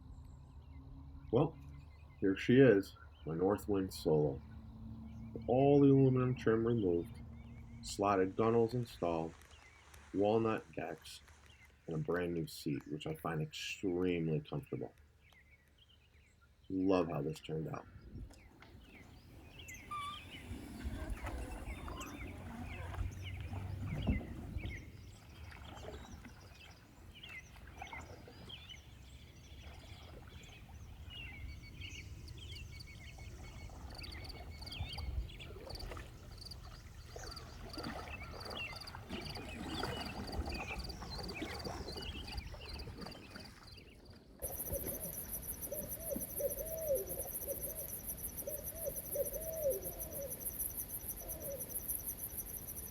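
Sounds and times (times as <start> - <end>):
birds chirping: 0.0 - 52.9
low hooting calls: 19.0 - 42.3, 44.4 - 52.9
high-pitched insect trill: 44.4 - 52.9.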